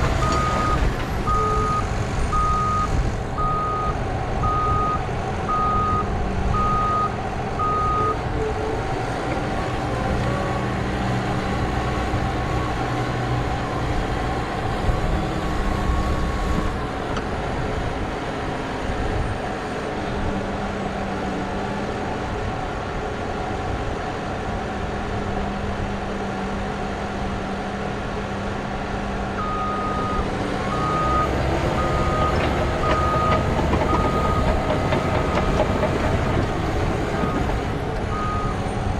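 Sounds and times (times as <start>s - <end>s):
bulldozer diesel engine under load: 0.0s - 38.9s
reversing alarm beeping: 0.2s - 8.2s, 29.4s - 36.4s, 37.0s - 38.6s.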